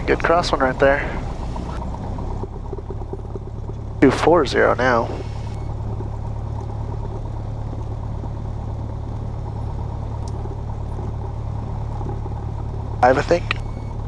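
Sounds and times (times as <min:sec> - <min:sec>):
aircraft engine droning in cabin: 0:00.0 - 0:14.0.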